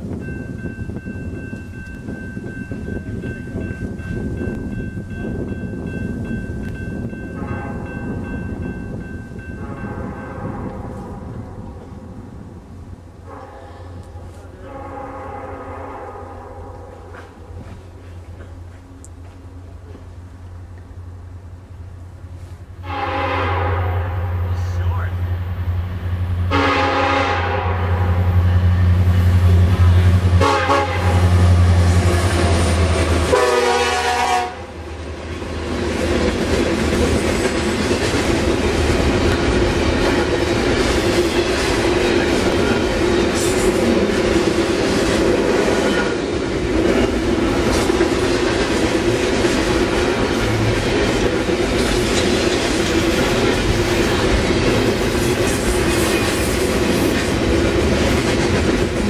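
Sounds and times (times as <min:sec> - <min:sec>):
diesel locomotive engine drone: 0:00.0 - 0:59.0
train cars rumbling past: 0:00.0 - 0:59.0
train horn blasts: 0:07.3 - 0:08.0, 0:09.6 - 0:11.8, 0:13.2 - 0:17.4, 0:22.8 - 0:24.8, 0:26.5 - 0:29.0, 0:29.8 - 0:32.3, 0:33.1 - 0:34.8.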